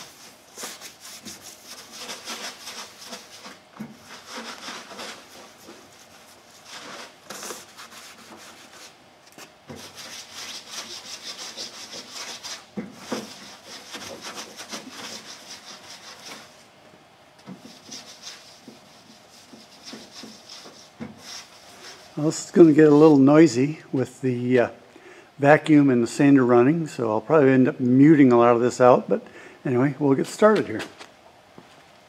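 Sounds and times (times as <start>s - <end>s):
rag wiping fiberglass: 0.0s - 16.7s, 17.4s - 23.4s.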